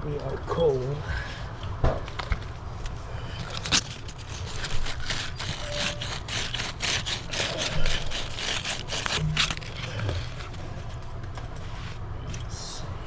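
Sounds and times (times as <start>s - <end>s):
steady low hum: 0.0s - 13.0s
short irregular scraping: 2.8s - 12.1s.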